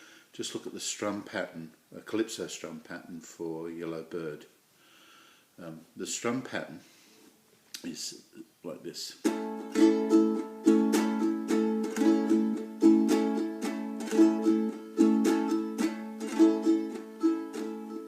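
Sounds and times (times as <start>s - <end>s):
ukulele strummed: 9.2s - 18.0s.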